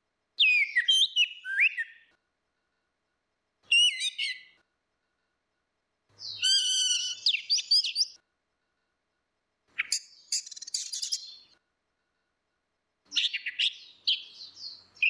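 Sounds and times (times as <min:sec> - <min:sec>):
thrush singing whistled notes: 0:00.4 - 0:02.1, 0:03.7 - 0:04.6, 0:06.2 - 0:08.2, 0:09.8 - 0:11.5.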